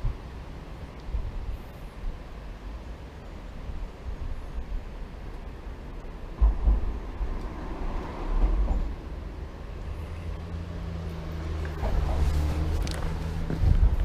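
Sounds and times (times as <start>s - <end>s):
wind buffeting microphone: 1.0s - 2.7s, 3.5s - 9.6s, 11.3s - 14.0s.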